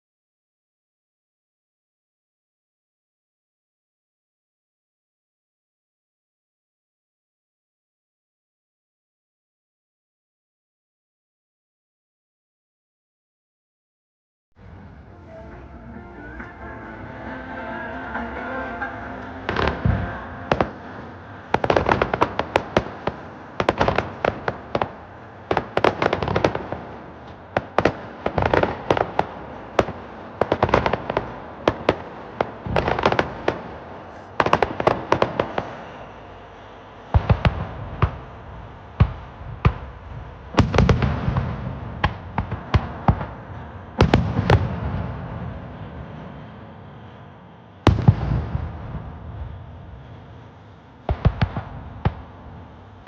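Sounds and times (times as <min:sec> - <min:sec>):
deep fireworks booms: 0:14.6 - 0:53.0
fireworks bangs and crackles: 0:17.2 - 0:53.0.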